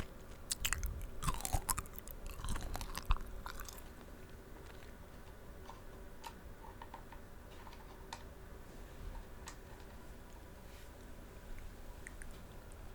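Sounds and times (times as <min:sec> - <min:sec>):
candy shell crunching: 0:00.0 - 0:03.9
mouth clicks and smacks: 0:12.0 - 0:12.4.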